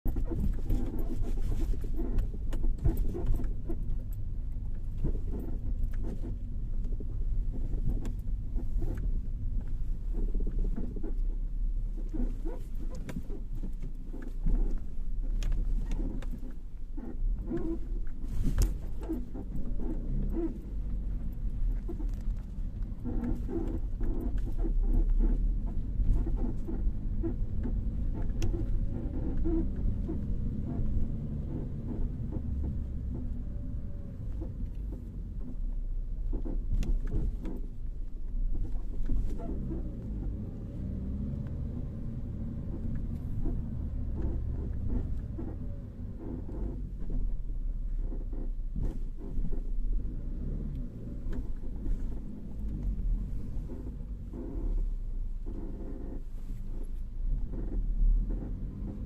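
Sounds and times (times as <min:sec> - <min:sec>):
car suspension creaking: 0:00.0 - 0:59.0
steady low rumble: 0:00.0 - 0:59.0.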